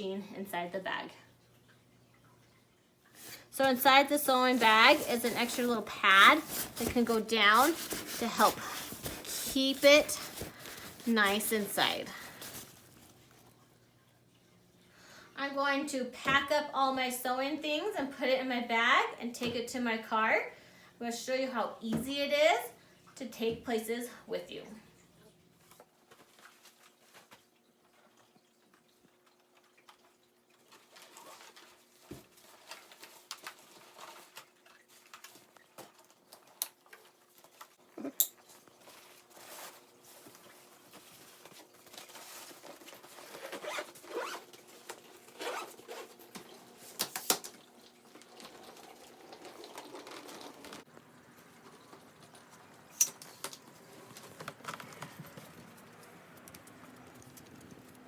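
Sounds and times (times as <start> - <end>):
faint steady hum: 0.0 - 34.4
fabric bag rustling: 3.7 - 13.2, 39.1 - 46.2
zipper: 43.2 - 44.5, 45.3 - 46.2.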